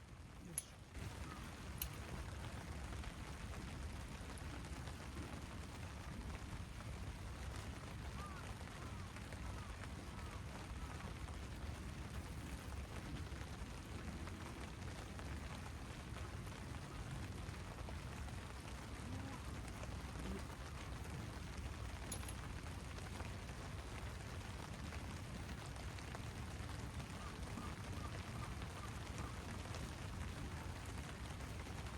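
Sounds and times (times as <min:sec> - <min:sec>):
rain falling: 0:00.0 - 0:31.9.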